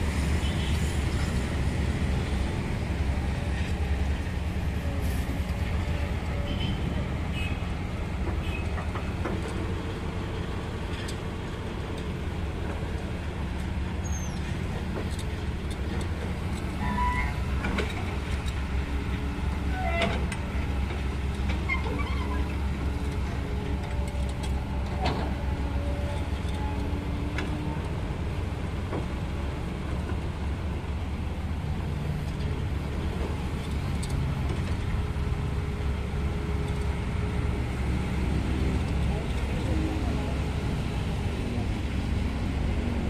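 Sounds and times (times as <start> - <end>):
low rumble of road traffic: 0.0 - 43.0.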